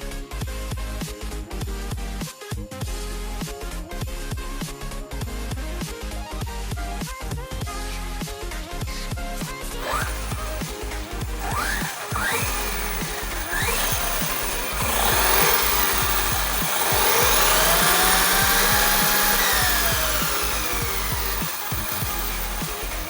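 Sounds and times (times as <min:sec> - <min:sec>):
electric motor whining: 0:09.8 - 0:23.0.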